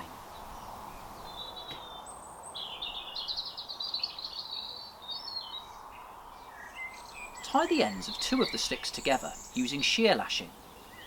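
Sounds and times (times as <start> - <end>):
outdoor ambience hiss: 0.0 - 11.0
songbird twittering: 0.3 - 11.0.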